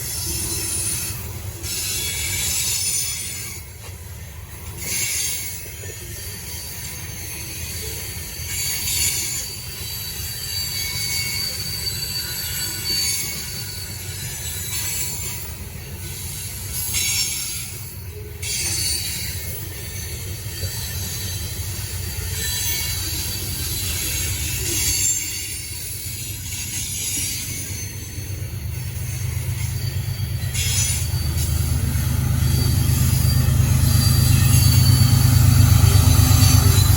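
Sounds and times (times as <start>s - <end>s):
train cars rumbling past: 0.0s - 36.9s
train wheels squealing: 0.0s - 36.9s.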